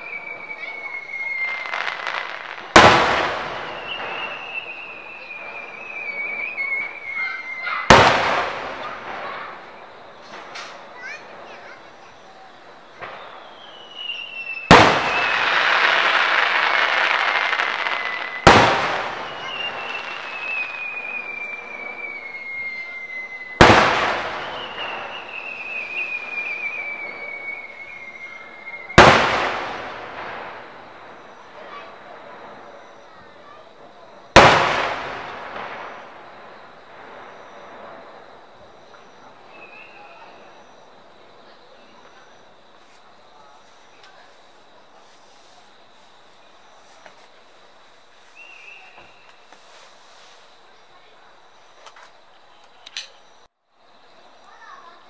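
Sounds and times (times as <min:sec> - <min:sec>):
high falling whistle: 0:00.0 - 0:02.0, 0:03.4 - 0:07.9, 0:13.2 - 0:15.8, 0:17.0 - 0:29.1
fireworks bursting with echo: 0:00.0 - 0:50.5
firework whistle falling in pitch: 0:24.2 - 0:29.0.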